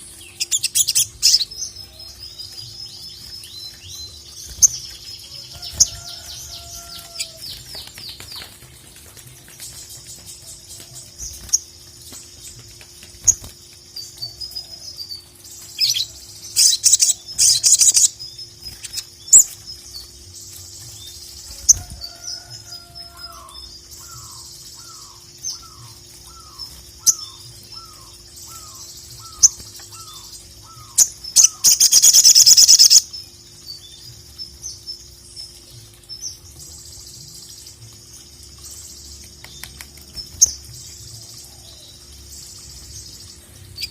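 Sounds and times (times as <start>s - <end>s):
sunbird twittering: 21.0s - 34.9s.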